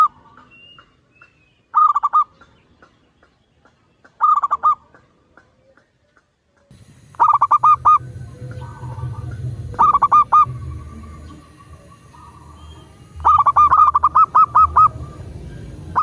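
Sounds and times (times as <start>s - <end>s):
dove cooing: 6.7s - 16.0s
low background rumble: 6.7s - 16.0s.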